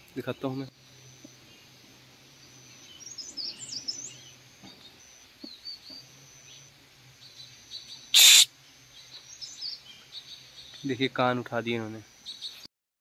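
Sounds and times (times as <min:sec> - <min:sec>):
birds chirping: 0:00.0 - 0:12.7
loud hiss burst: 0:08.2 - 0:08.5.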